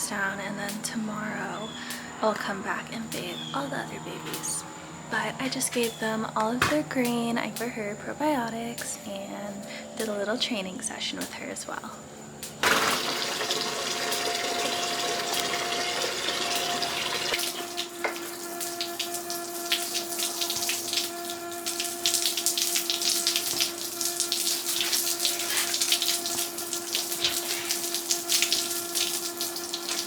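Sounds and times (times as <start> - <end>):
water running from garden hose: 12.6 - 30.0
water spattering: 12.6 - 30.0.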